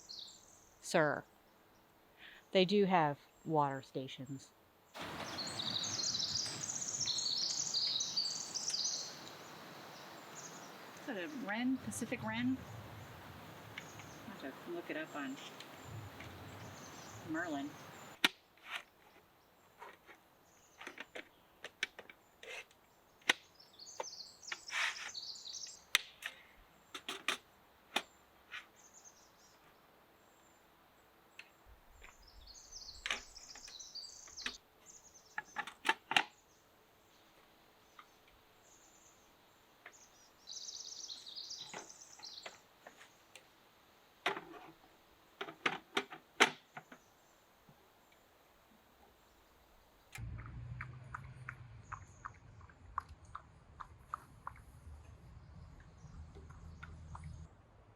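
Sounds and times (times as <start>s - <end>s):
songbird singing: 0.0s - 18.2s, 19.0s - 27.2s, 27.9s - 43.5s, 46.5s - 57.5s.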